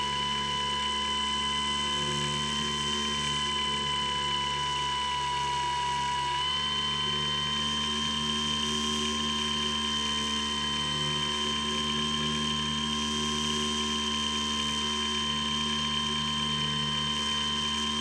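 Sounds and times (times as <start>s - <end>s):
electric motor and propeller whine: 0.0s - 18.0s.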